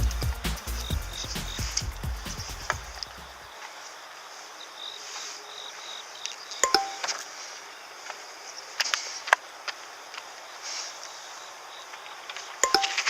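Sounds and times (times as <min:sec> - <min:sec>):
high outdoor hiss: 0:00.0 - 0:13.0
faint insect-like whine: 0:02.6 - 0:13.0.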